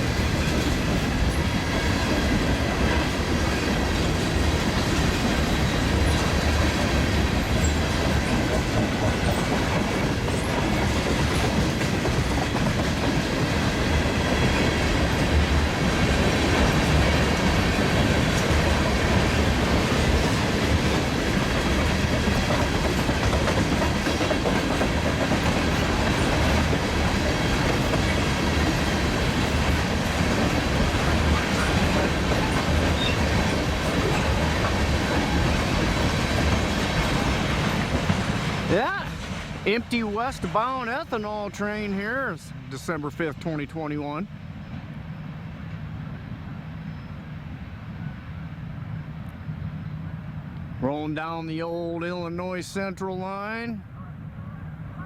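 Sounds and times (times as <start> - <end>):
train wheels clattering: 0.0 - 41.9.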